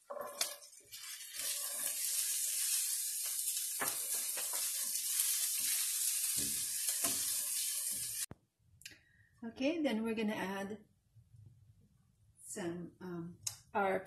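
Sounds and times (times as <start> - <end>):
spatula stirring and scraping: 0.0 - 8.3
vegetables sizzling in a pan: 0.0 - 8.3.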